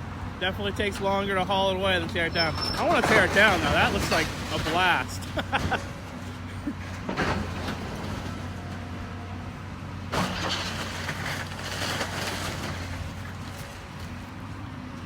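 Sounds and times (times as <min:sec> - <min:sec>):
diesel engine running: 0:00.0 - 0:15.0
building crashing down: 0:02.6 - 0:06.0, 0:06.9 - 0:08.6, 0:10.1 - 0:13.6.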